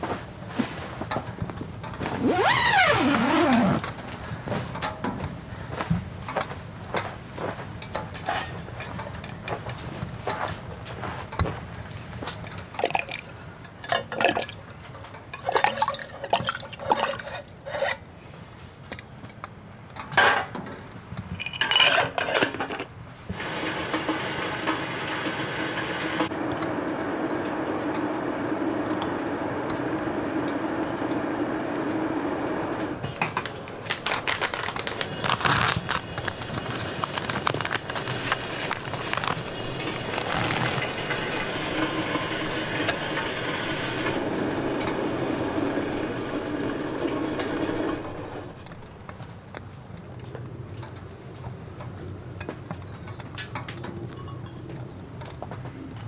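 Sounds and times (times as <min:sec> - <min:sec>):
crackling and crinkling clicks: 0:00.0 - 0:12.8, 0:22.8 - 0:56.0
light ticks and pattering: 0:26.0 - 0:56.0.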